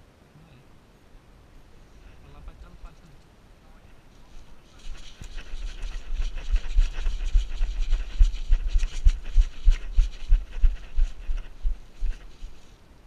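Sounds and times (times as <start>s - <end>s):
steady rustling: 3.8s - 12.8s.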